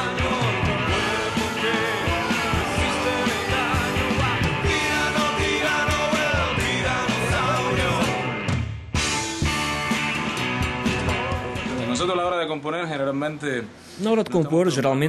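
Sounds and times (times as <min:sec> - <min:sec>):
punk rock song with singing: 0:00.0 - 0:11.8.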